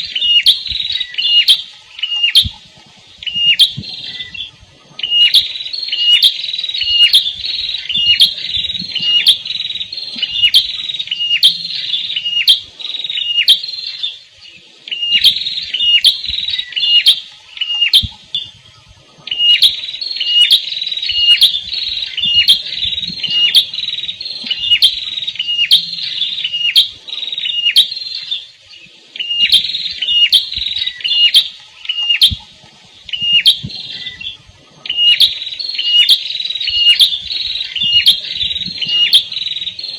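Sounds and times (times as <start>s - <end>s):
songbird sharp repeated chirps: 0.0s - 39.9s.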